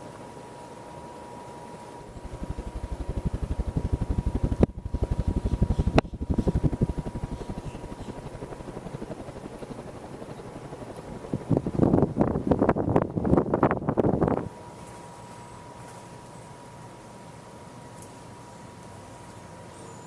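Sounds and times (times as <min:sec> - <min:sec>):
ceiling fan running: 0:00.0 - 0:19.5.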